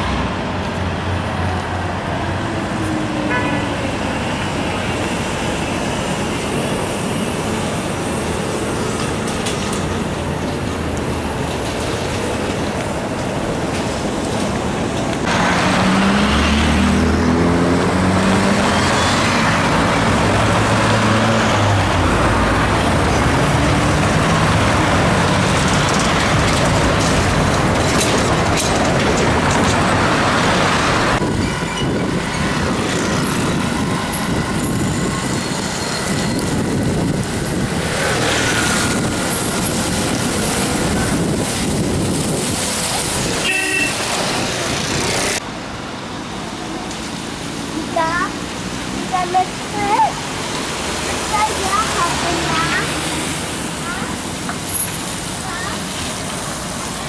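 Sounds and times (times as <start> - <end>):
city street traffic: 0.0 - 57.0
electric bus: 0.0 - 57.0
trolleybus driving past: 0.0 - 57.0
motor scooters: 43.2 - 45.4.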